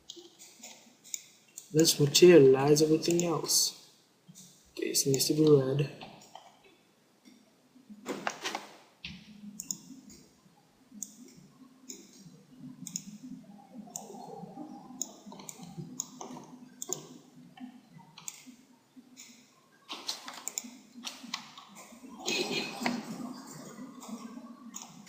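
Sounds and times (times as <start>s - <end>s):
computer mouse clicking: 0.1s - 1.7s, 3.0s - 3.4s, 9.0s - 10.3s, 11.0s - 13.3s, 13.9s - 18.6s, 19.2s - 21.9s, 22.8s - 25.0s.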